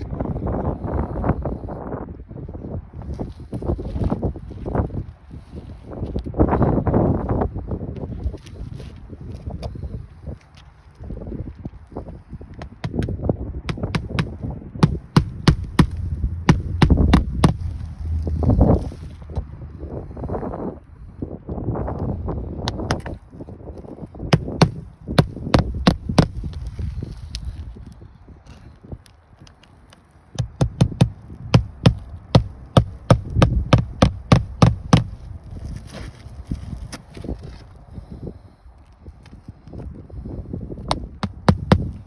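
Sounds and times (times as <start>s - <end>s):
wind rumble on microphone: 0.0s - 42.0s
hammer striking roofing nails: 12.6s - 13.1s, 13.7s - 17.8s, 22.7s - 23.1s, 24.4s - 26.6s, 30.4s - 35.3s, 40.9s - 42.0s.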